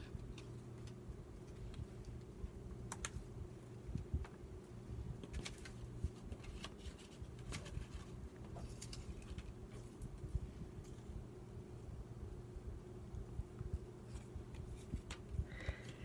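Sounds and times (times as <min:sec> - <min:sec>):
low steady hum: 0:00.0 - 0:16.0
paper being handled: 0:05.2 - 0:10.0.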